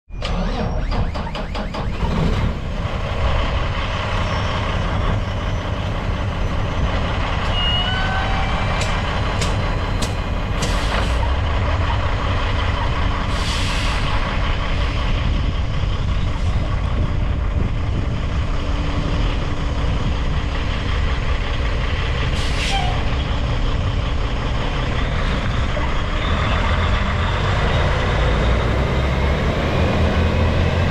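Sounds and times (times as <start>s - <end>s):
diesel engine running: 0.2s - 30.9s
sharp clicks: 8.8s - 11.1s.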